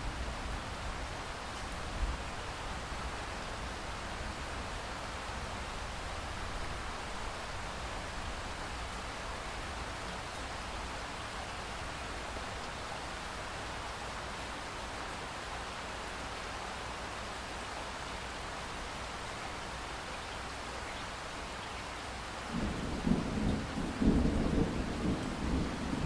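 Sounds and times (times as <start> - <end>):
rolling thunder rumble: 22.5 - 26.0.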